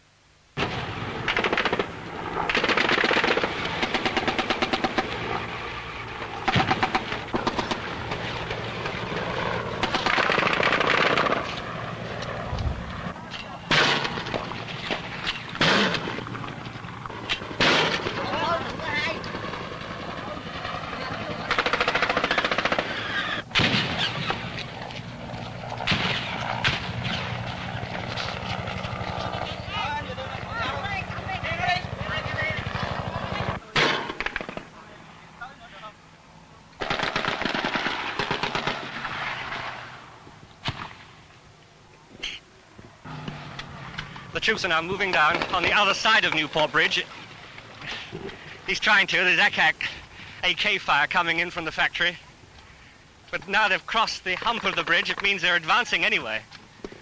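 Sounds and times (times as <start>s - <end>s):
gunshots: 0.6s - 5.2s, 6.4s - 7.9s, 9.8s - 11.5s, 13.7s - 14.4s, 15.6s - 16.2s, 17.6s - 18.3s, 21.4s - 24.6s, 25.8s - 27.6s, 33.3s - 34.7s, 36.8s - 39.9s
automatic gunfire bursts: 1.3s - 1.9s, 2.5s - 5.1s, 9.8s - 11.5s, 21.5s - 24.3s, 36.8s - 39.3s
low steady drone: 42.5s - 45.6s.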